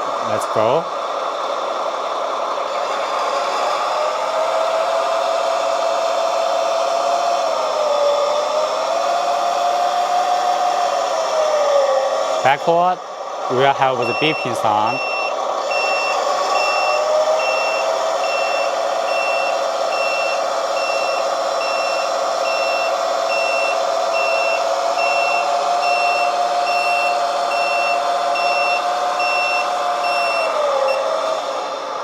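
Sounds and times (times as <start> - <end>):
steady drone: 12.2 - 32.0
reversing beeper: 13.5 - 31.1.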